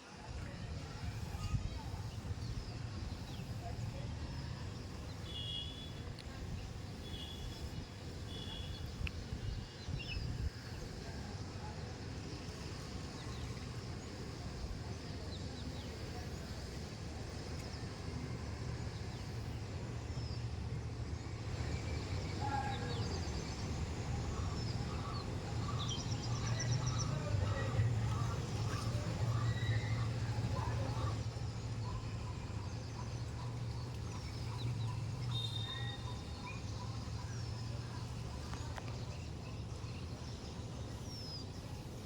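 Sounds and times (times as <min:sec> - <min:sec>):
bird chirps: 0:22.3 - 0:37.6.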